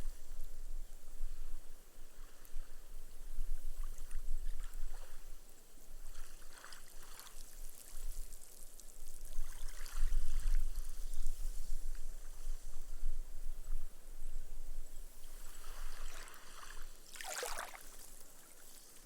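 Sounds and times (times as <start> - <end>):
gentle waves on sand: 3.8 - 12.7, 15.2 - 19.0.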